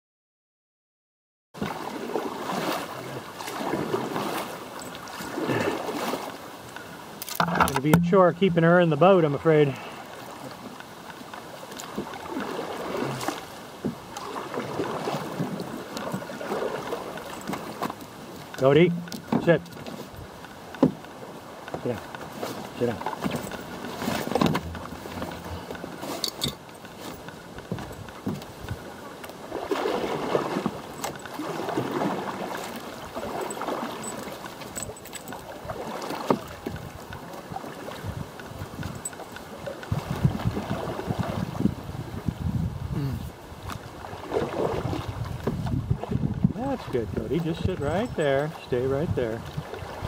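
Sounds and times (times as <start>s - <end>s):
water splashing around canoe: 1.6s - 50.0s
sharp knock on canoe: 7.4s - 8.8s, 20.8s - 21.0s.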